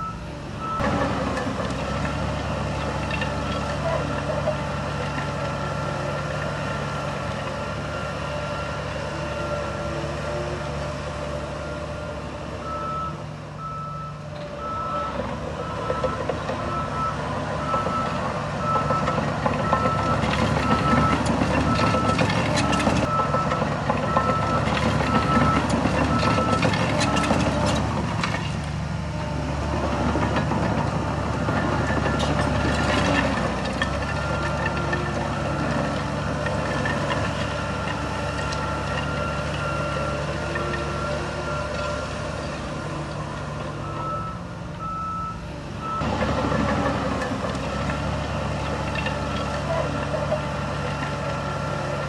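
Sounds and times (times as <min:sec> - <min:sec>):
reversing alarm beeping: 0:00.0 - 0:00.9, 0:11.5 - 0:27.6, 0:37.0 - 0:42.1, 0:43.7 - 0:46.2
diesel engine running: 0:00.0 - 0:52.0.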